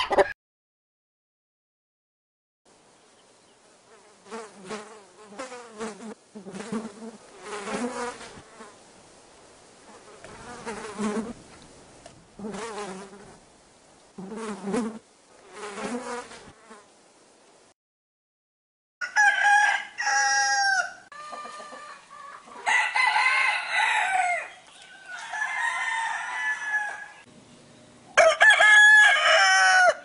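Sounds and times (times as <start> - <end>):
housefly buzzing: 3.8 - 8.8, 9.9 - 11.4, 12.4 - 13.4, 14.2 - 16.9.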